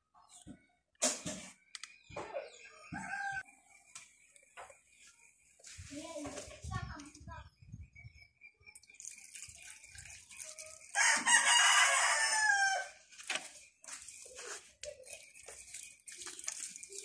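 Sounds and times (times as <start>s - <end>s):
rooster crowing: 2.9s - 3.5s, 11.0s - 13.0s.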